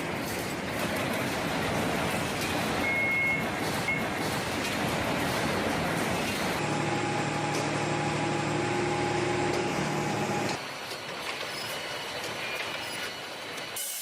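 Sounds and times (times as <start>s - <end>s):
machinery droning hum: 5.7s - 10.6s.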